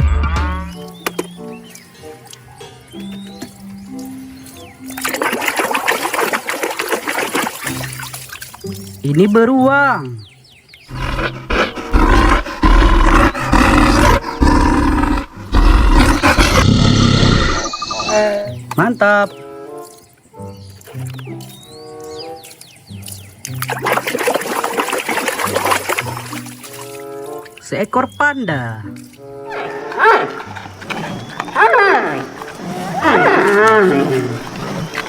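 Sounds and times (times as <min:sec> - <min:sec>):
background music: 0:00.0 - 0:35.0
water splashing and trickling: 0:00.7 - 0:14.4, 0:18.1 - 0:35.0
bear roaring: 0:10.9 - 0:18.5, 0:29.5 - 0:35.0.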